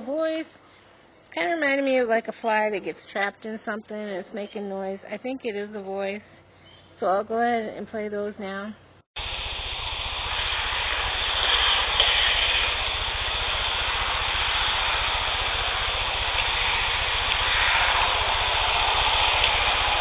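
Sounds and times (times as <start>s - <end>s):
low hum: 9.2s - 20.0s
steady hiss: 9.2s - 20.0s.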